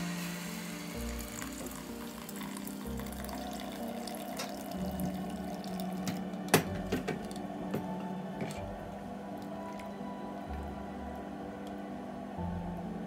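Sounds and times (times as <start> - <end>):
water running from a tap: 0.0 - 7.2.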